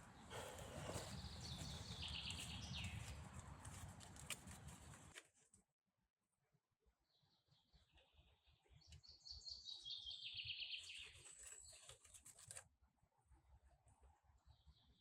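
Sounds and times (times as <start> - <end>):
small songbird singing: 1.0 - 3.1, 7.1 - 11.8.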